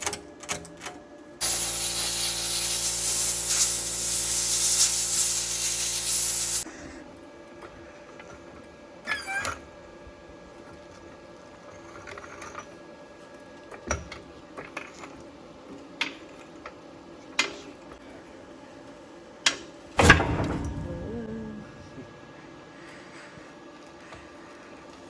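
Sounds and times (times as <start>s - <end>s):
faint steady hum: 14.8s - 25.0s.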